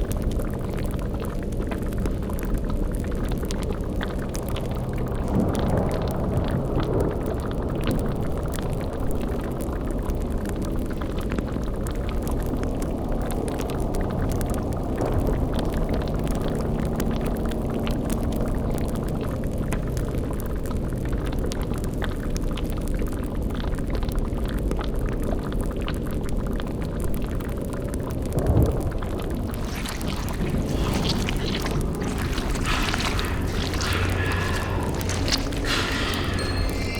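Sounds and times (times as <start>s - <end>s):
faint fire crackles: 0.0s - 36.9s
cauldron bubbling: 29.2s - 36.9s.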